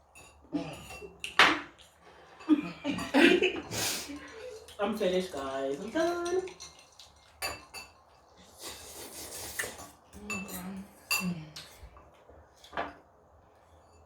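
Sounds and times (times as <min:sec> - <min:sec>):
spoon clinking against a bowl: 0:04.1 - 0:08.1, 0:09.6 - 0:11.8.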